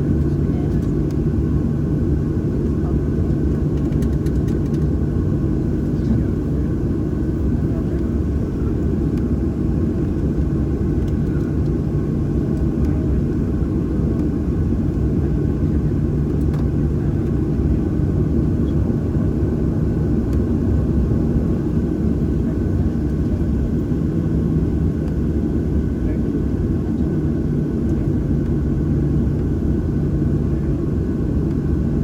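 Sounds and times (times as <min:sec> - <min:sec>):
airplane cabin rumble: 0:00.0 - 0:32.0.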